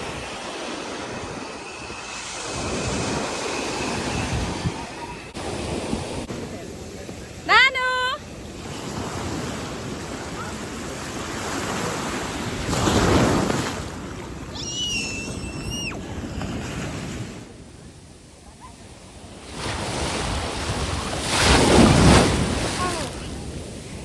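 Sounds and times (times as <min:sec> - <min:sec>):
wind on microphone: 0:00.0 - 0:07.0
ocean surf washing onto beach: 0:00.0 - 0:24.0.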